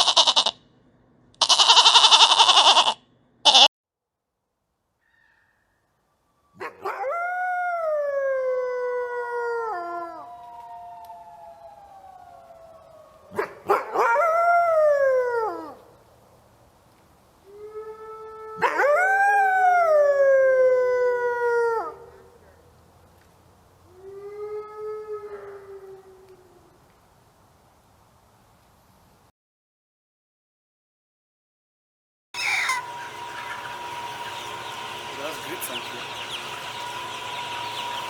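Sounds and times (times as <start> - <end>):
dog howling: 6.6 - 15.8, 17.5 - 22.2, 24.0 - 26.5, 32.4 - 38.0
fainter howls from second animal: 32.4 - 38.0.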